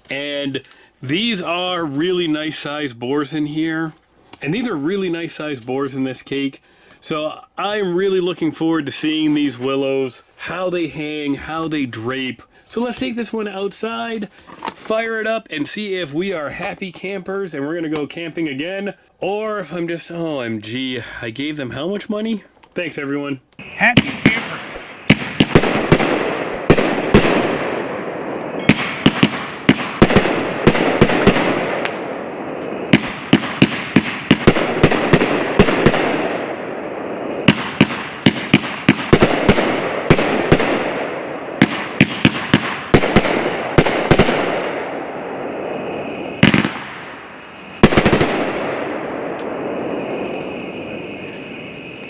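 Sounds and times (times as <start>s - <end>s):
crackling hiss: 0.0s - 52.0s
firework reports: 0.0s - 52.0s.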